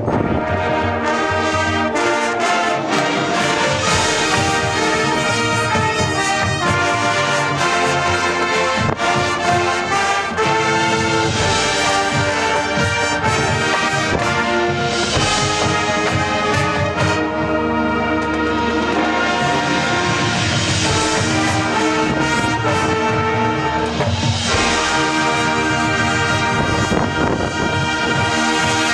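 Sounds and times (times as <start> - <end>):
wind rumble on microphone: 0.0 - 1.0, 26.4 - 28.3
marching band playing: 0.0 - 28.9
drum hits: 2.9 - 17.2, 20.4 - 28.8.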